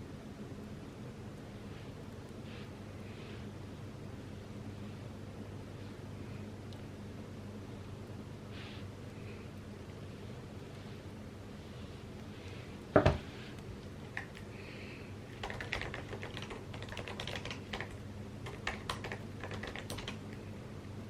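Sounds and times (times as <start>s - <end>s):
keyboard typing: 14.1s - 14.5s, 15.3s - 20.3s.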